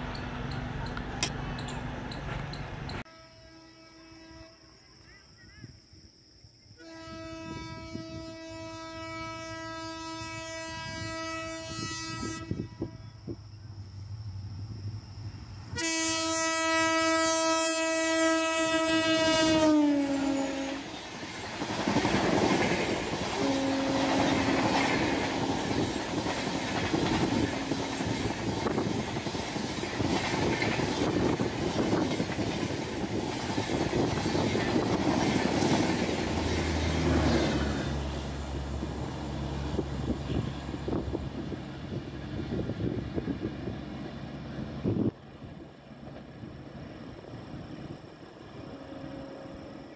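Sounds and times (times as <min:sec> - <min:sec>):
train wheels on rails: 0:00.0 - 0:03.1, 0:18.6 - 0:48.6
locomotive horn blasts: 0:03.1 - 0:04.8, 0:06.8 - 0:13.2, 0:15.8 - 0:20.9, 0:23.4 - 0:25.0, 0:40.1 - 0:41.0, 0:48.6 - 0:49.9.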